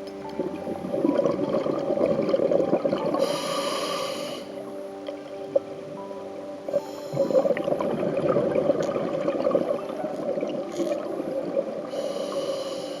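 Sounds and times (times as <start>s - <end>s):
exhaled bubbles gurgling: 0.0s - 13.0s
regulator inhale hiss: 3.2s - 4.6s, 6.7s - 7.6s, 11.9s - 13.0s.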